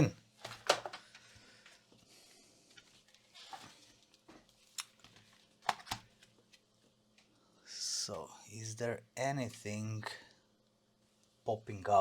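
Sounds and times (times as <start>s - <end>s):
laptop handling clicks and rustles: 0.4s - 1.4s, 2.7s - 7.3s.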